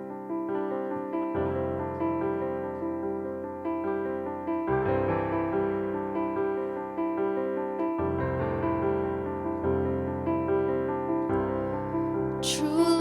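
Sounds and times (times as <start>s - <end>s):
slow piano chords: 0.0s - 13.0s
person singing a ballad: 12.4s - 13.0s.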